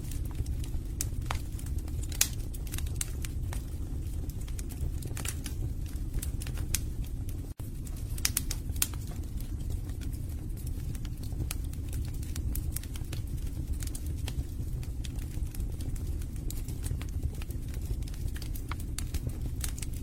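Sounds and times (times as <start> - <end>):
fire crackling and popping: 0.0 - 20.0
low rumble of flames: 0.0 - 20.0.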